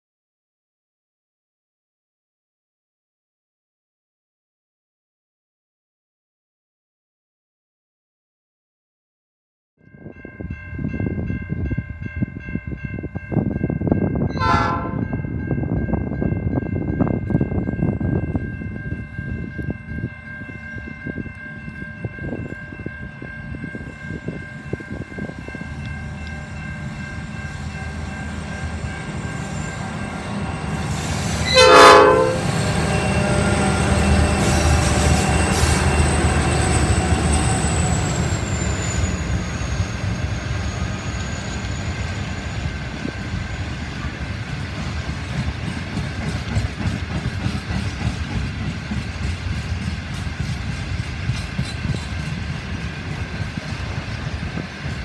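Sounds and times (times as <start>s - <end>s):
diesel locomotive engine rumble: 10.0s - 55.0s
locomotive horn blast: 14.3s - 15.1s, 28.6s - 36.0s
wheels clickety-clack: 42.6s - 55.0s.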